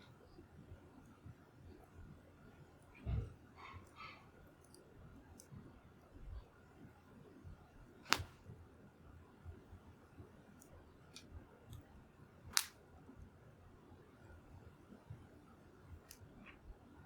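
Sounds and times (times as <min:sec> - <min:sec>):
sharp fire pops: 0:08.0 - 0:08.4.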